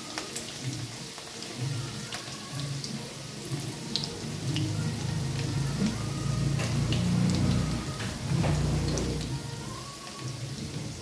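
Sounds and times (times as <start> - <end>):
potatoes frying in oil: 0.0 - 11.0
tap water running: 3.6 - 9.4.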